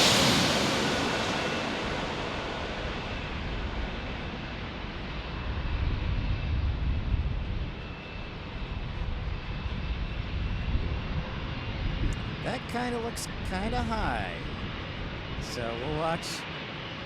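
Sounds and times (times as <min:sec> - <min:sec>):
jet airliner engine noise: 0:00.0 - 0:17.0
faint high whine: 0:12.1 - 0:16.5.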